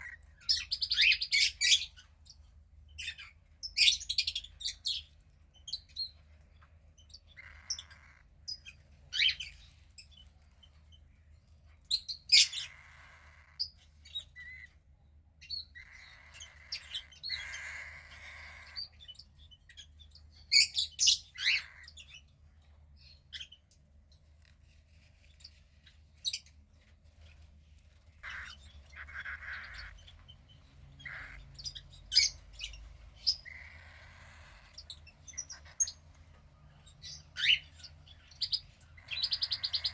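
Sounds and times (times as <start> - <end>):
cockatiel chick chirping: 0.0 - 2.1, 7.1 - 10.4, 11.9 - 14.8, 15.4 - 22.2, 28.2 - 39.9
raspy hissing chick calls: 15.9 - 18.8, 28.2 - 29.9, 33.5 - 34.7.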